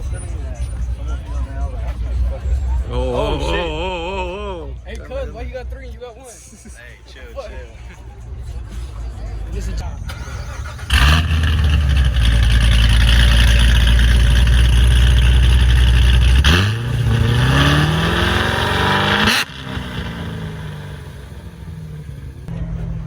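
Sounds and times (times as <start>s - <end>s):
vehicle engine revving: 10.1s - 23.0s.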